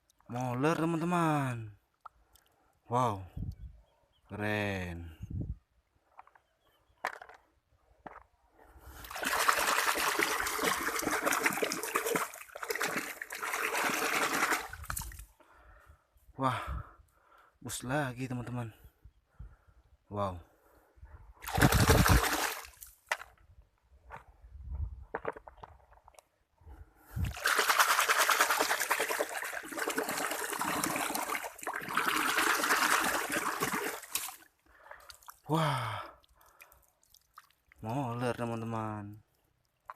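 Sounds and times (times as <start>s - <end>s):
faint clicks: 2.0s - 2.8s
water running and splashing: 9.0s - 15.2s, 21.4s - 22.9s, 27.2s - 35.5s.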